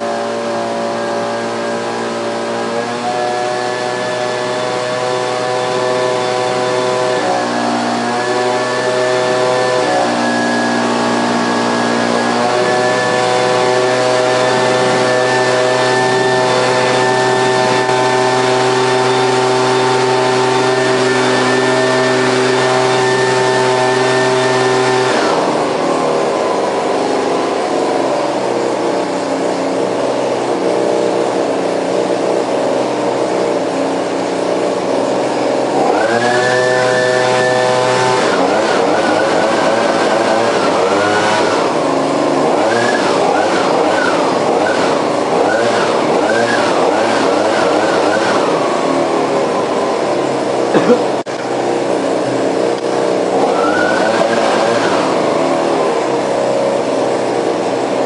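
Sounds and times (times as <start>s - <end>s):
leaf blower engine running: 0.0s - 58.0s.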